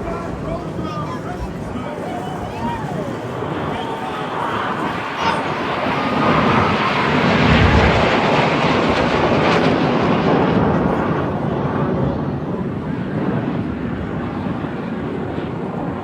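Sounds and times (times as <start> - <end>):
aircraft flying past: 0.0 - 16.0.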